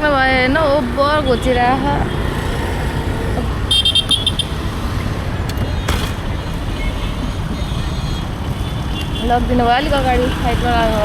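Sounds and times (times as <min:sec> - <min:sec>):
road traffic rumble: 0:00.0 - 0:11.0
vehicle horn beeping: 0:03.7 - 0:04.6.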